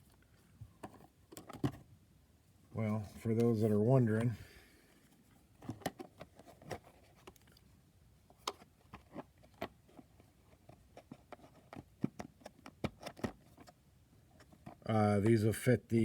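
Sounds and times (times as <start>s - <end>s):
card holders clicking and tapping: 8.3s - 13.8s.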